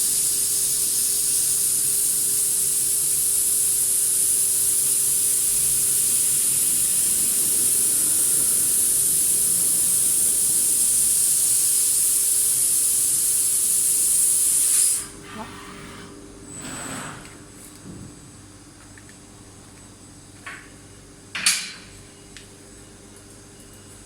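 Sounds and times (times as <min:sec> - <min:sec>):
machine blowing air hiss: 0:00.0 - 0:17.2.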